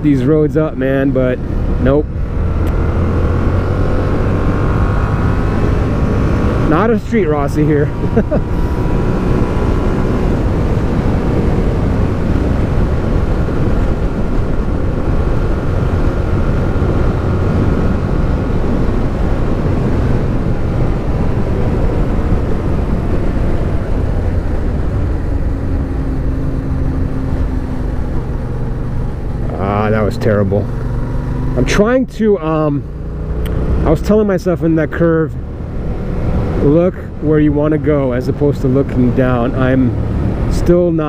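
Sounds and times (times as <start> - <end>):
wind rushing over microphone: 0.0 - 41.0.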